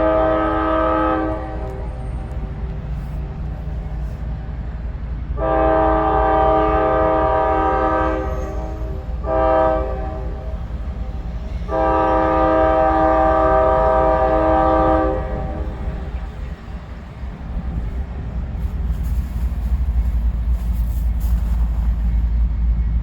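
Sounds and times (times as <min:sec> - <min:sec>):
locomotive air horn blasts: 0:00.0 - 0:02.2, 0:05.4 - 0:10.7, 0:11.7 - 0:16.0.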